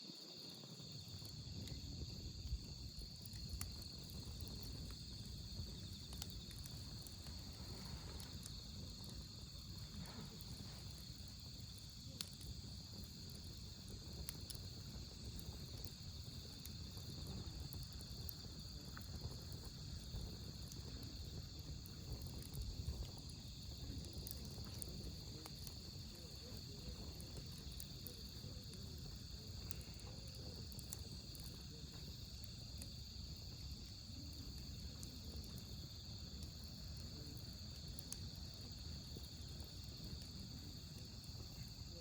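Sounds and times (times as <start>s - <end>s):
crickets chirping: 0.0s - 42.0s
wood fire crackling: 0.1s - 42.0s.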